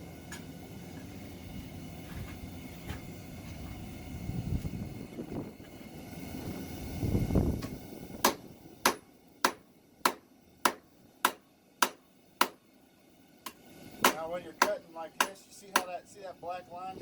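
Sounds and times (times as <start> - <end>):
hammer striking steel on anvil: 8.2 - 12.6, 13.4 - 16.0.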